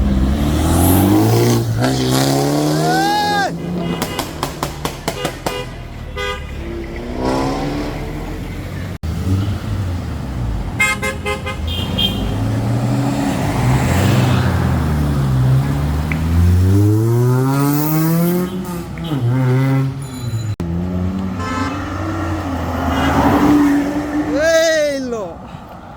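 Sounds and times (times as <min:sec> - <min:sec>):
car engine accelerating: 0:00.0 - 0:04.7, 0:05.5 - 0:10.8
cars passing: 0:00.0 - 0:25.9
car horn honk: 0:03.2 - 0:07.3, 0:10.8 - 0:12.6, 0:18.2 - 0:20.6, 0:21.3 - 0:23.6.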